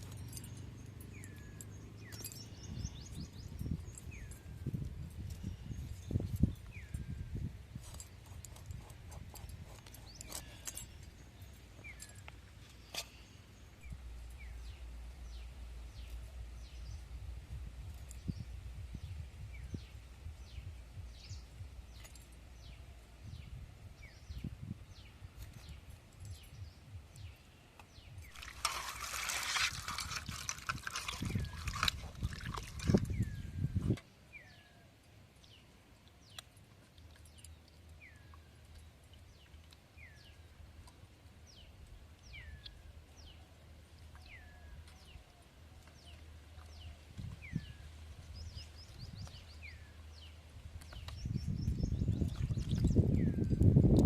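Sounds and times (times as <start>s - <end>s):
birds chirping: 0.0s - 54.0s
water pouring: 28.3s - 33.2s.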